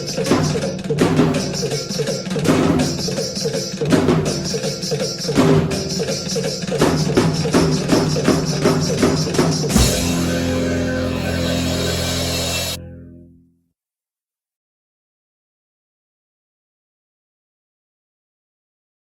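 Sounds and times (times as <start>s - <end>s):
drum kit playing: 0.0s - 12.8s
film song backing track: 9.6s - 13.3s.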